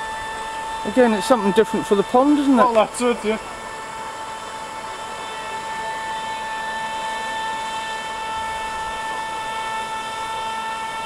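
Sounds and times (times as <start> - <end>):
electric motor and propeller whine: 0.0 - 11.0.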